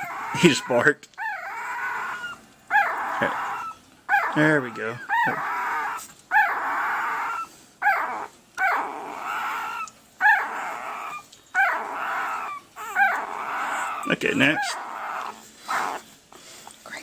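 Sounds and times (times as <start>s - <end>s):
puppy crying: 0.0s - 16.5s.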